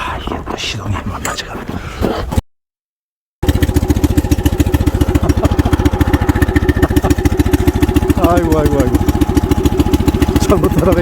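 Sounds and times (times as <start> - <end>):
small petrol engine running: 3.4 - 11.0.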